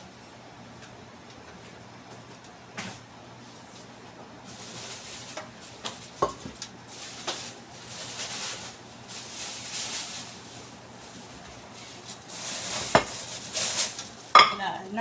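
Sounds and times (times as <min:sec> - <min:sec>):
pot and utensils clinking: 0:14.3 - 0:14.8.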